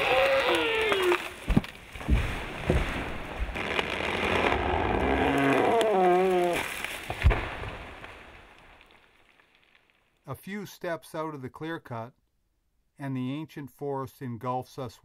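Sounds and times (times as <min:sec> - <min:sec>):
sharp crack: 0:00.0 - 0:10.1.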